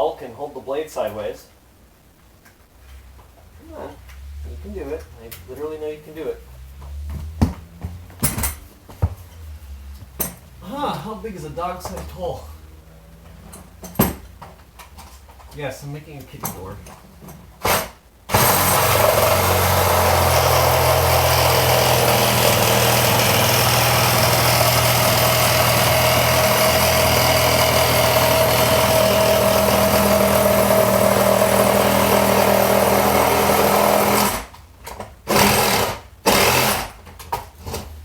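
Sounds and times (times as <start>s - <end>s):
reciprocating saw cutting: 17.7s - 34.5s.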